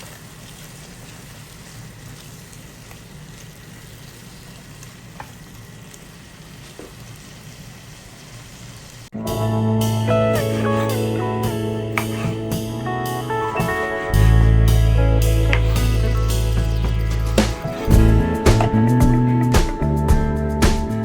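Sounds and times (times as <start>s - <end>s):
food sizzling in a pan: 0.0s - 9.1s
guitar music: 9.1s - 21.0s.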